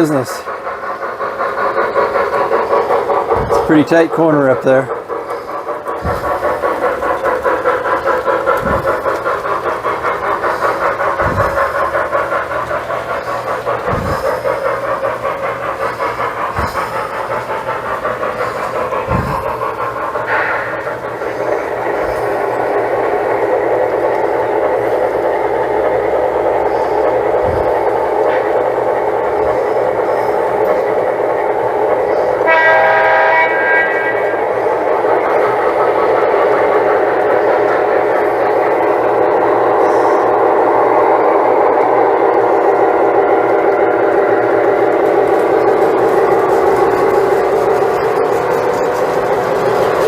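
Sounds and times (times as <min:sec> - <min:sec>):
model train rumbling on track: 0:00.0 - 0:50.0
train horn signal: 0:32.4 - 0:34.4.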